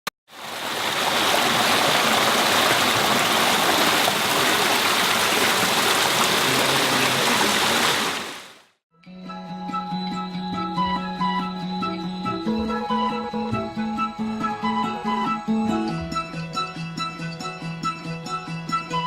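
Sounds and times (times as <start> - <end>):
running water rushing: 0.3 - 8.7.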